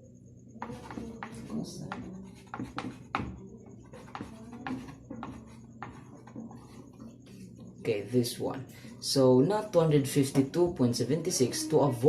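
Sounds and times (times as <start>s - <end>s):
steady low hum: 0.0s - 12.0s
irregular tapping and scratching: 0.6s - 7.7s.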